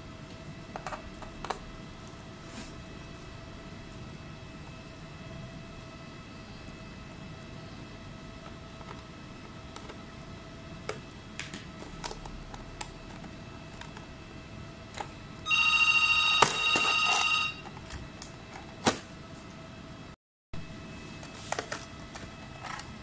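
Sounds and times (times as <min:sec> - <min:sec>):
electronic ringing tone: 0:15.5 - 0:17.7.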